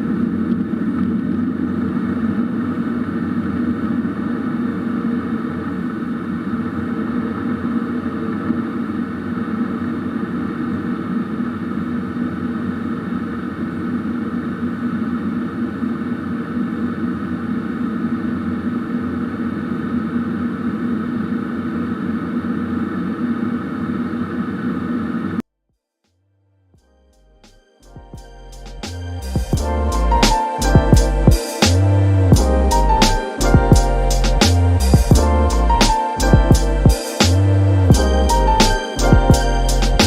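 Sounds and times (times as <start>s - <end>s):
airplane cabin engine drone: 0.0s - 25.4s.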